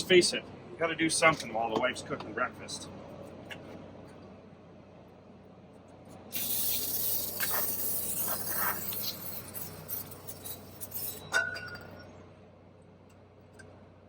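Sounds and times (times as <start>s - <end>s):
spraying hiss: 6.4s - 10.3s
metallic clink of small parts: 6.4s - 12.0s.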